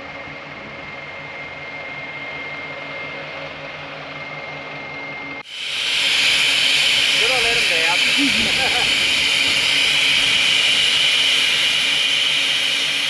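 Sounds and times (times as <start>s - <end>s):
high whine: 0.0s - 13.0s
loud steady hiss: 5.4s - 13.0s
diesel truck engine running: 6.5s - 12.9s.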